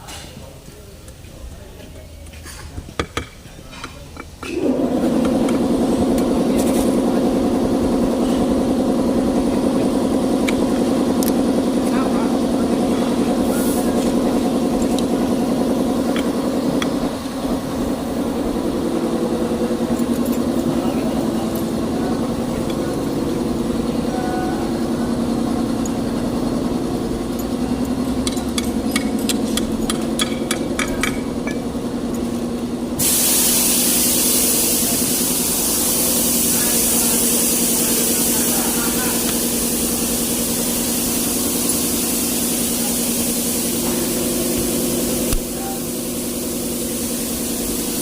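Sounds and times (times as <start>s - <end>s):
diesel engine idling: 4.6s - 48.0s
loud air hiss: 12.3s - 25.5s, 33.0s - 48.0s.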